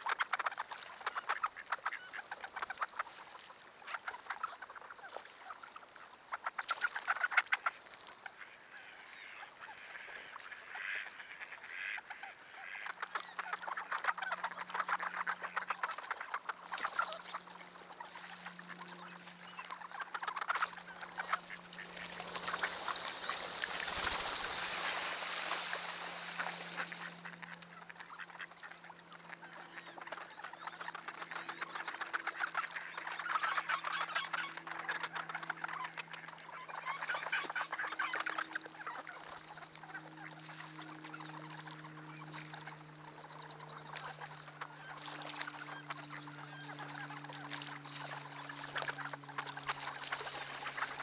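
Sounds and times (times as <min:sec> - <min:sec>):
ducks quacking: 0:00.0 - 0:51.0.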